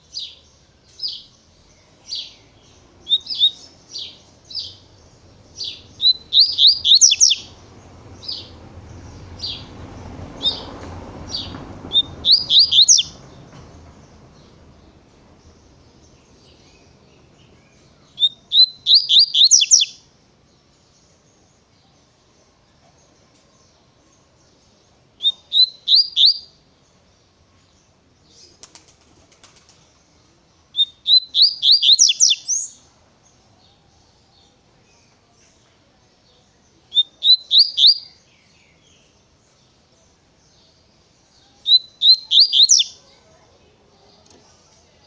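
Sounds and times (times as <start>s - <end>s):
bird singing sharp notes: 2.0s - 9.7s, 10.4s - 14.6s, 16.4s - 20.0s, 30.8s - 32.8s, 36.9s - 38.7s, 41.6s - 43.0s
rapid high bird trills: 5.6s - 7.6s, 11.3s - 13.2s.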